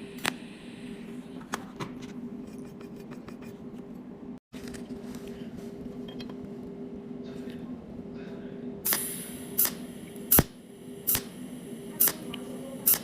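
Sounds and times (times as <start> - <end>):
welding arc snaps: 8.9 - 13.0
welding machine hum: 8.9 - 13.0.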